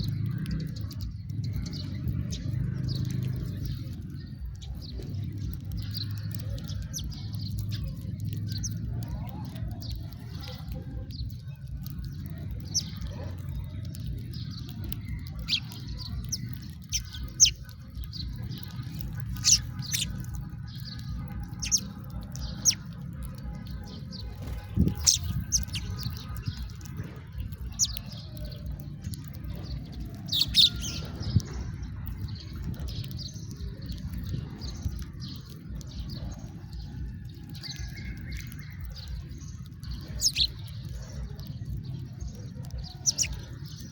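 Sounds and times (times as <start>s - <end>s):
sparrows chirping: 0.0s - 43.9s
steady low rumble: 0.0s - 43.9s.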